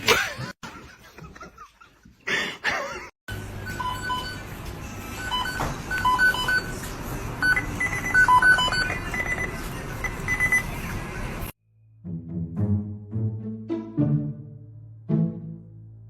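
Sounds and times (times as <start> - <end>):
short electronic beeps: 7.4 - 10.7.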